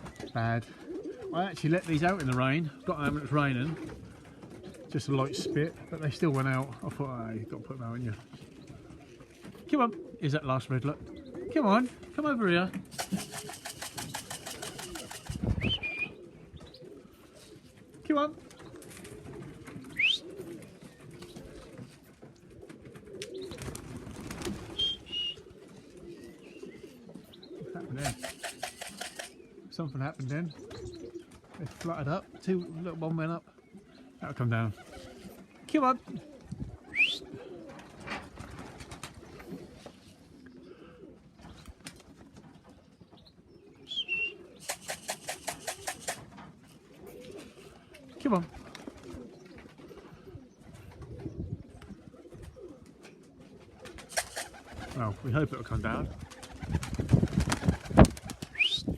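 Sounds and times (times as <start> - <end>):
pigeons cooing: 0.0 - 58.9
sharp clicks: 12.9 - 15.4, 28.0 - 29.4, 44.6 - 46.2
sharp clatters: 12.9 - 15.5, 28.0 - 29.4, 44.6 - 46.2, 54.1 - 54.6
high whistles: 24.8 - 25.4, 43.9 - 45.4, 58.5 - 58.9.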